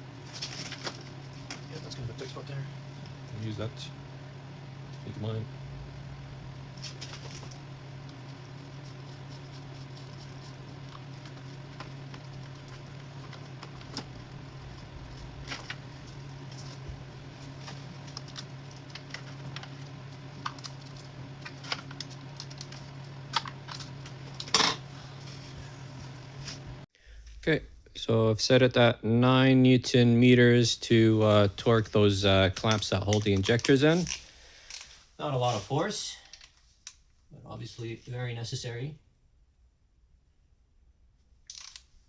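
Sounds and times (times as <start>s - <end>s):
steady low hum: 0.0s - 41.4s.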